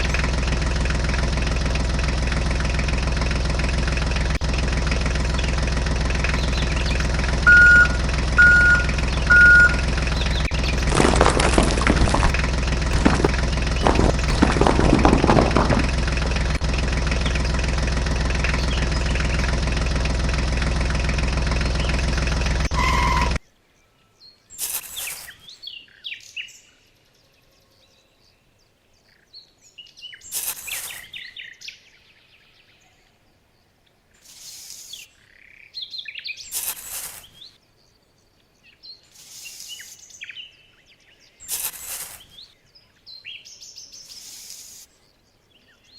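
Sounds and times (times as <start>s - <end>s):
birds chirping: 5.0s - 45.9s
small motor running: 6.2s - 23.4s
rustling noise: 10.7s - 16.4s, 30.3s - 31.1s, 36.5s - 37.4s, 41.4s - 42.4s.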